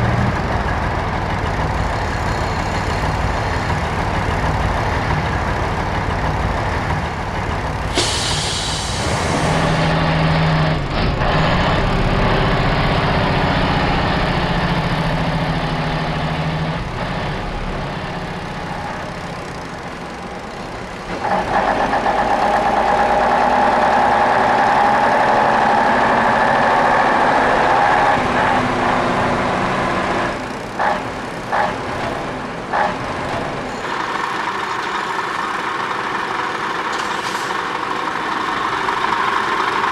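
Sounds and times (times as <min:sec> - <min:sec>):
heavy diesel trucks running: 0:00.0 - 0:39.9
air-brake hiss: 0:07.9 - 0:09.8, 0:36.9 - 0:37.7.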